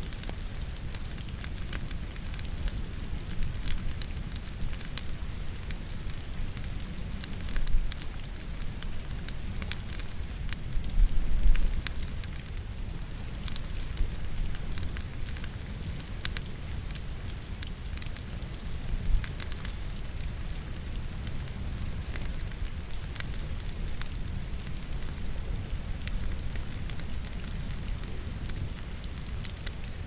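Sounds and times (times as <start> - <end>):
logs crackling in fireplace: 0.0 - 30.0
rain: 0.0 - 30.0.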